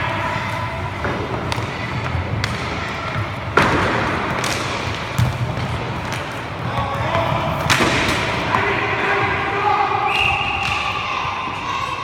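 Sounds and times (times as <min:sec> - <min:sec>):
hockey sticks and puck knocking: 0:00.2 - 0:09.4.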